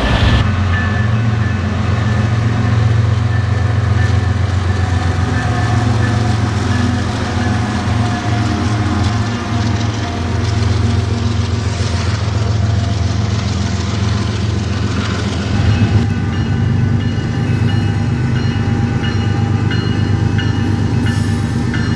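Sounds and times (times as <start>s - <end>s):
diesel locomotive engine idling: 0.0s - 0.8s.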